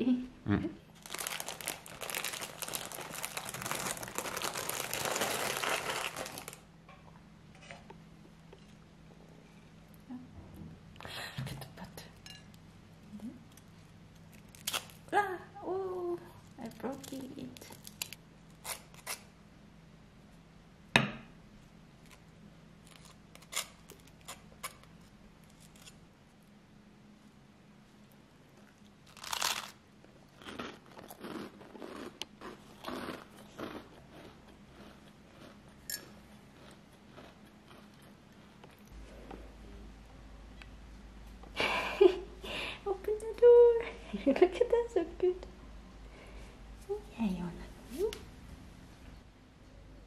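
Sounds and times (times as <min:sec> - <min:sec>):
plastic wrapper crinkling: 0:01.0 - 0:06.7, 0:29.1 - 0:29.8.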